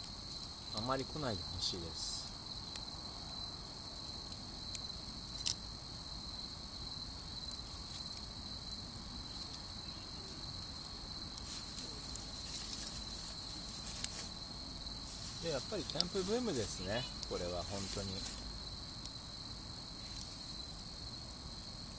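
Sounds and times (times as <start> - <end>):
campfire crackling pops: 0.0 - 21.9
crickets chirping: 0.0 - 21.9.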